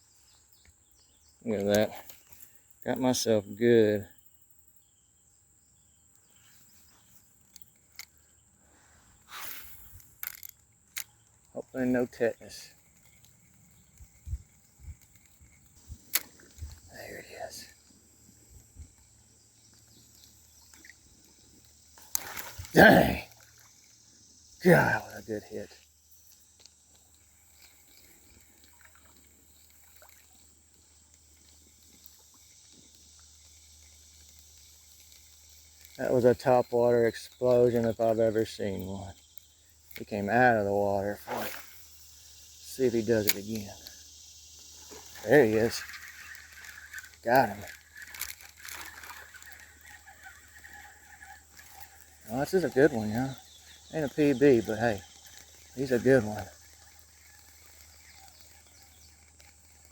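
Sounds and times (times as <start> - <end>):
insects droning: 0.0 - 59.9
rustle: 0.0 - 59.9
faint clicks: 6.1 - 8.4, 9.2 - 59.9
soft ticks: 44.6 - 59.9.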